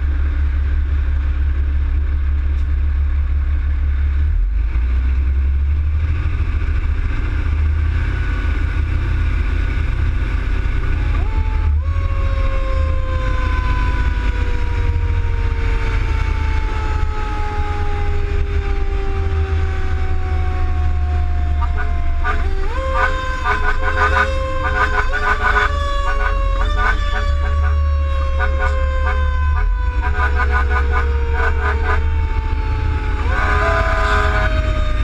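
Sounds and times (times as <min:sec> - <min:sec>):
low rumble of moving vehicle: 0:00.0 - 0:35.0
fire engine siren: 0:08.3 - 0:35.0.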